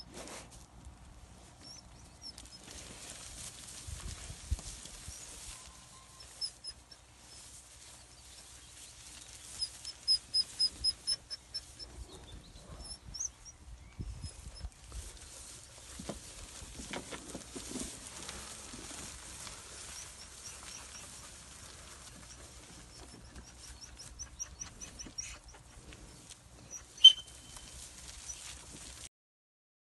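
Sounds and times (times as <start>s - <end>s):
small bird chirping: 1.6s - 2.6s, 8.0s - 15.4s, 26.6s - 28.4s
wind rumble on microphone: 3.6s - 5.2s, 11.9s - 15.4s.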